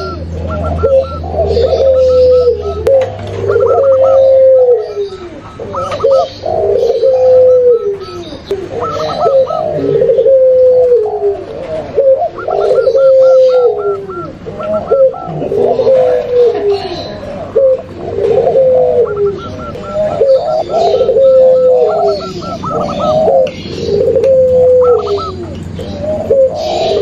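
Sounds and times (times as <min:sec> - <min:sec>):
doves cooing: 0:00.0 - 0:27.0
stuttering dove call: 0:00.0 - 0:27.0.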